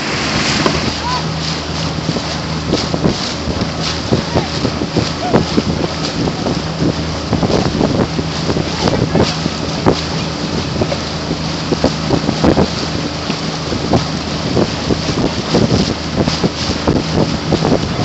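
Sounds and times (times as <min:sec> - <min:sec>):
water splashing around boat: 0:00.0 - 0:18.0
wind buffeting microphone: 0:00.0 - 0:18.0.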